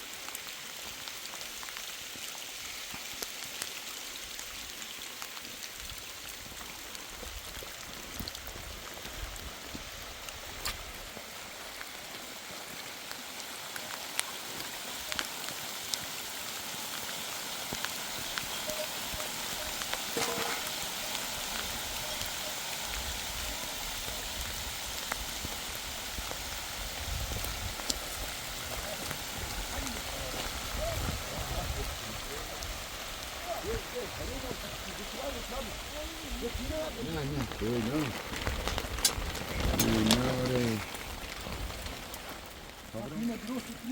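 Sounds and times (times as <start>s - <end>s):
steady rain falling: 0.0s - 43.9s
raindrop taps: 24.4s - 43.9s.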